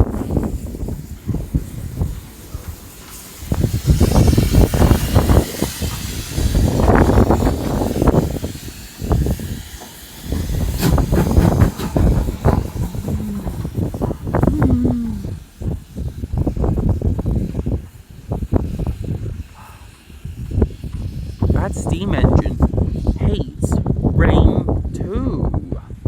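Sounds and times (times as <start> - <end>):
steam locomotive hissing: 0.0 - 24.2
low rumble: 10.6 - 15.6.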